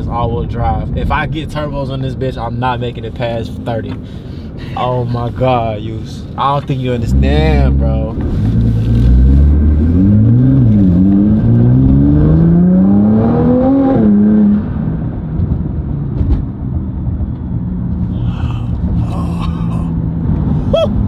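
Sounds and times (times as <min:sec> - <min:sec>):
car engine accelerating hard: 0:07.0 - 0:16.4.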